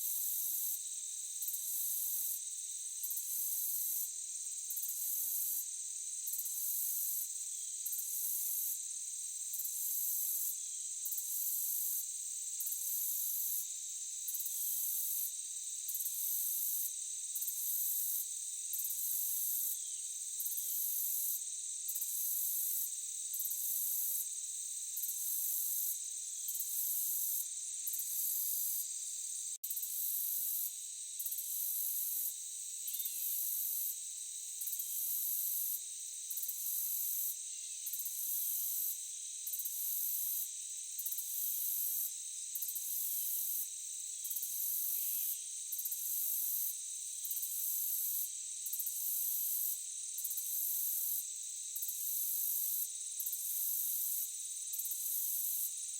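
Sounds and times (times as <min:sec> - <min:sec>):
shrill pulsing insect layer: 0:00.1 - 0:55.9
crickets trilling: 0:11.8 - 0:55.9.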